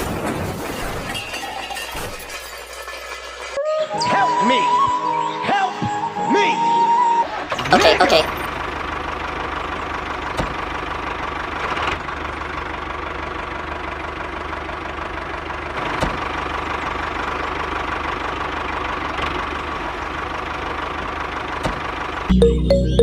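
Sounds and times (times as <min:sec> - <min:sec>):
miniature tractor engine humming: 0:07.3 - 0:23.0.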